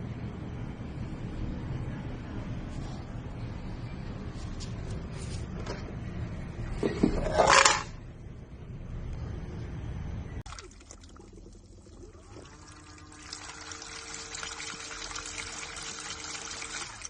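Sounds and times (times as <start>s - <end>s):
washing machine low hum: 8.2s - 17.0s
water pouring and trickling: 10.5s - 17.0s.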